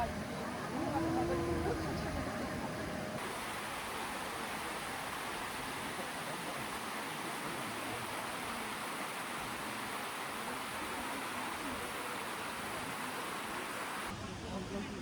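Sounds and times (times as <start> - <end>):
flowing water: 0.0 - 15.0.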